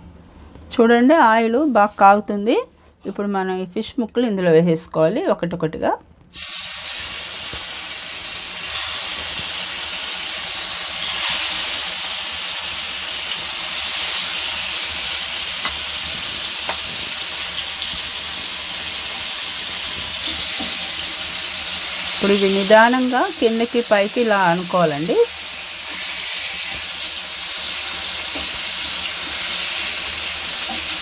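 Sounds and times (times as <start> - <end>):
fish deep-frying in hot oil: 6.3 - 31.0.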